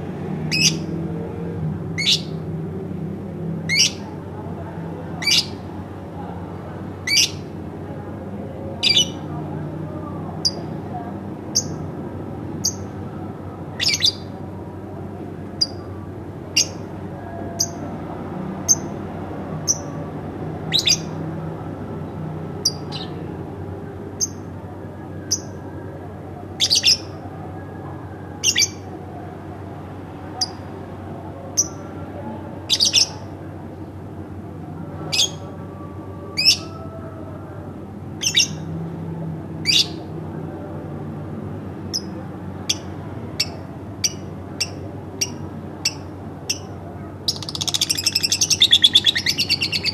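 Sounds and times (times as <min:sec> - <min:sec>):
bird chirping: 0:47.3 - 0:49.9.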